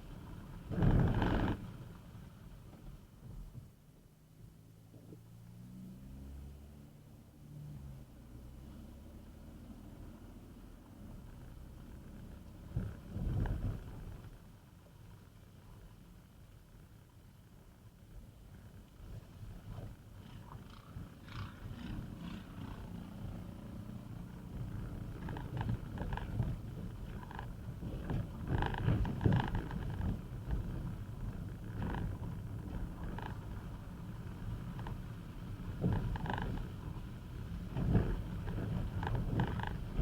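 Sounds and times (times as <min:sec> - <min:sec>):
car engine and road noise: 0:04.6 - 0:15.5, 0:19.3 - 0:40.0.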